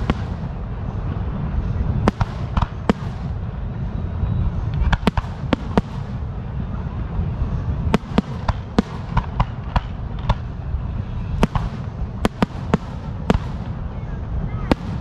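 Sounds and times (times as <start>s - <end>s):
fireworks bangs and pops: 0.0s - 0.6s, 2.0s - 3.4s, 4.8s - 6.2s, 7.9s - 10.6s, 11.4s - 13.8s, 14.7s - 15.0s
low rumble: 0.0s - 15.0s.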